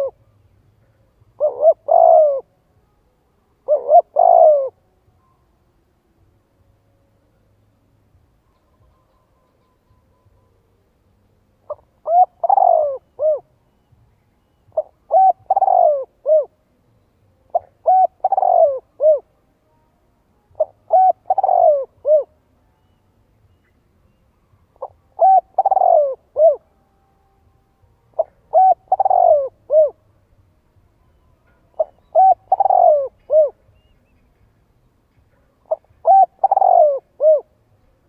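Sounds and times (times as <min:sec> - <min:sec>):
dove cooing: 0:00.0 - 0:00.2, 0:01.4 - 0:02.5, 0:03.6 - 0:04.8, 0:11.6 - 0:13.6, 0:14.7 - 0:16.6, 0:17.5 - 0:19.4, 0:20.6 - 0:23.0, 0:24.8 - 0:26.8, 0:28.1 - 0:30.0, 0:31.4 - 0:34.2, 0:35.3 - 0:37.6.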